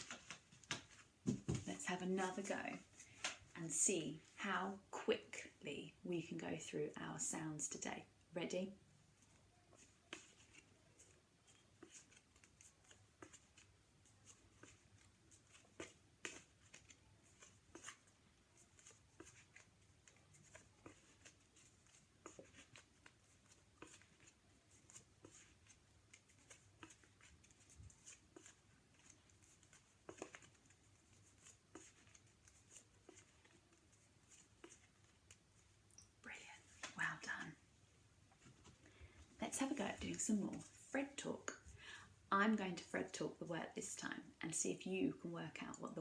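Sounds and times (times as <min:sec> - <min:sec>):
small clicks and rustles: 0:09.2 - 0:37.0.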